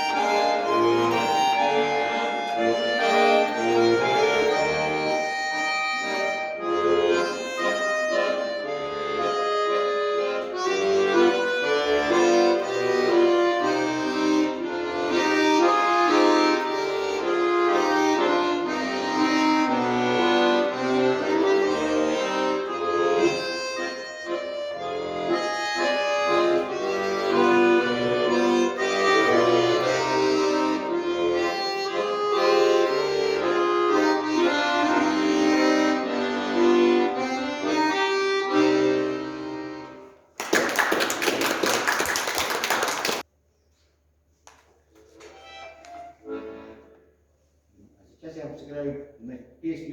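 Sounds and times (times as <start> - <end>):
accordion playing: 0.0 - 43.3, 45.1 - 47.7.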